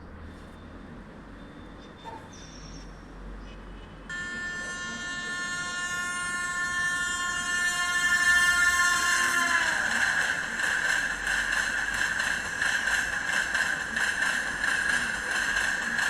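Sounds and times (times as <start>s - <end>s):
train horn chord: 4.1s - 14.0s.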